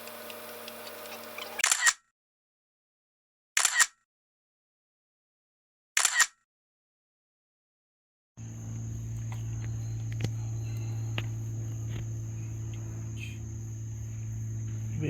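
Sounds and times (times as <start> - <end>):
crickets chirring: 8.4 - 15.0
low steady hum: 8.4 - 15.0.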